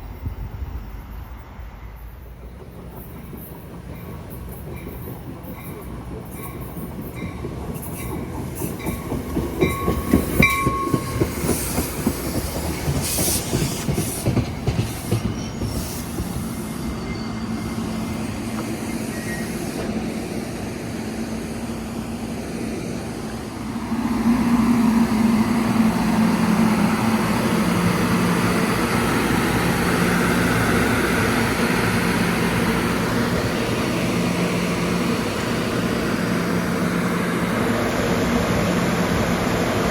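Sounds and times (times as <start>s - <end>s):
train wheels clicking over rail joints: 2.6s - 17.0s
wheel squeals: 12.8s - 19.9s.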